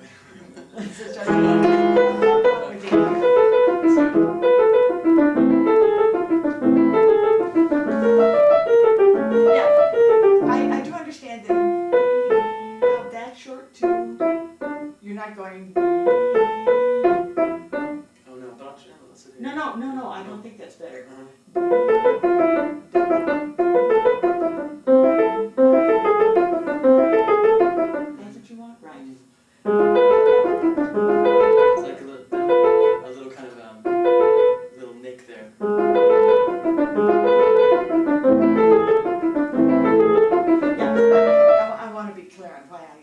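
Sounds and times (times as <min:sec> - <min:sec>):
piano chords and melody: 0:01.3 - 0:13.3, 0:13.9 - 0:15.0, 0:15.8 - 0:18.1, 0:21.6 - 0:28.2, 0:29.7 - 0:33.2, 0:33.8 - 0:34.7, 0:35.6 - 0:42.0.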